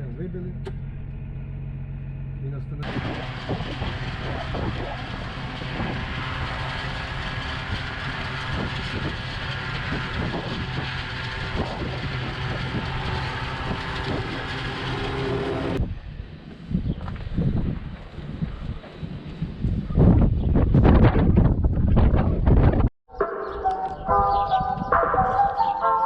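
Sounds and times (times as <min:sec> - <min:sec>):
tractor engine running: 0:00.0 - 0:15.8.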